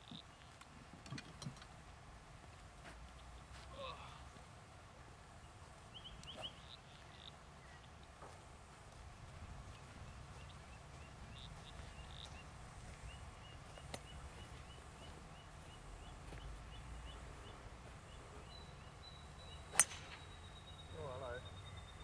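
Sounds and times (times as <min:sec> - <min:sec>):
bird rising chirp: 0:09.7 - 0:22.0
golf club clipping turf: 0:19.7 - 0:20.2.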